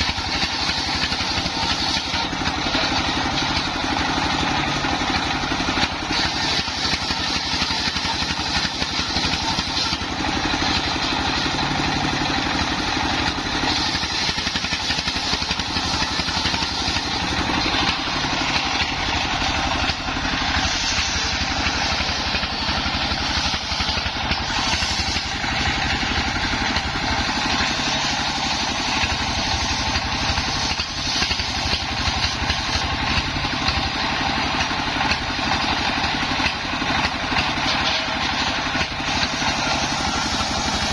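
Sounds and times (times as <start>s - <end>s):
high saw hiss: 0.0s - 3.5s, 5.9s - 10.2s, 13.2s - 34.1s, 38.3s - 40.9s
sawmill engine running: 0.0s - 40.9s.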